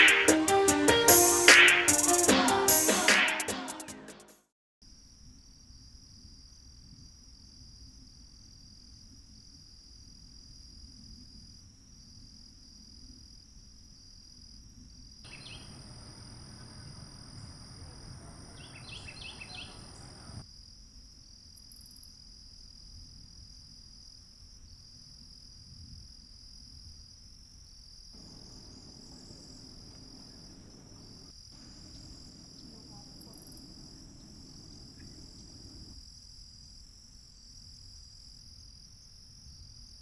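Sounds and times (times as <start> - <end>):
insects droning: 15.3 - 20.4, 28.2 - 37.6
loud background noise: 15.3 - 20.4
low outdoor rumble: 15.3 - 20.4, 28.2 - 35.9.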